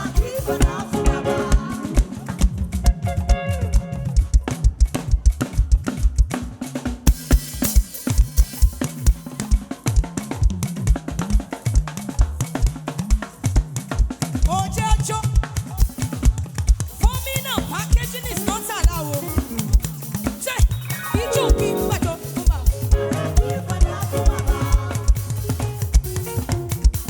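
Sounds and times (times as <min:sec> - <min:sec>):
live band playing: 0:00.0 - 0:27.0
melodic line with bending notes: 0:20.8 - 0:27.0.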